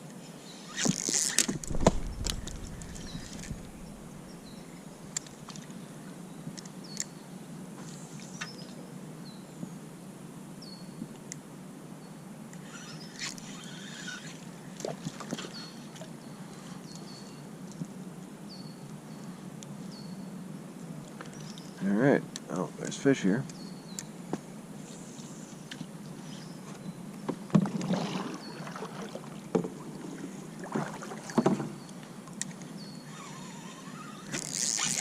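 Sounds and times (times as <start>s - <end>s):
steady low hum: 1.6s - 6.0s
small bird chirping: 1.8s - 5.2s.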